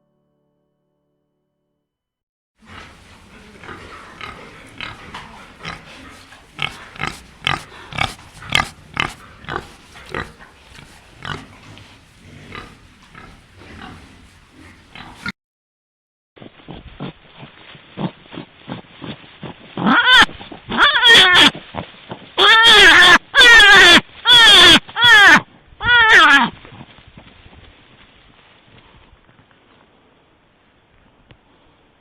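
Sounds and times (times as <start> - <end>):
pig grunting: 2.6 - 15.3.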